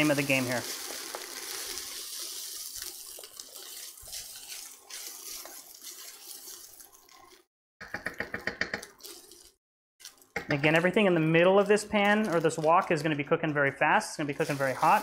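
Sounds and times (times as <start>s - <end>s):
rice sizzling in a wok: 0.0s - 8.1s, 8.8s - 13.1s, 14.2s - 15.0s
spatula scraping a wok: 0.7s - 10.2s.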